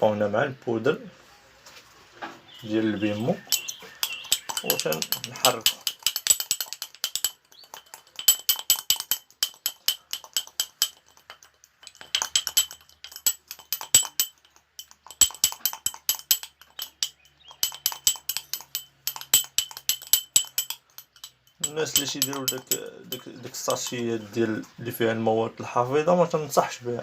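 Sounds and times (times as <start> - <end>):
spoon clinking against bowl: 3.2 - 24.4.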